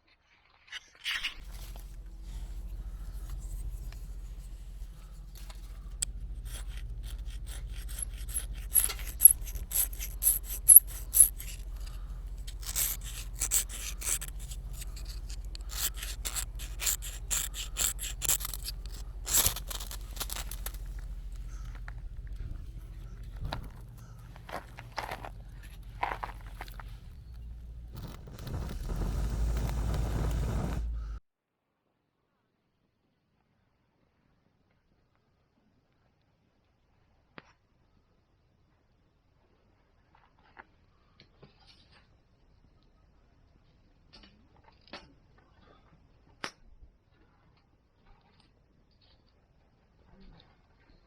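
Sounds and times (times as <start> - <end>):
rhythmic scraping strokes: 1.4 - 31.2
steady low hum: 1.4 - 31.2.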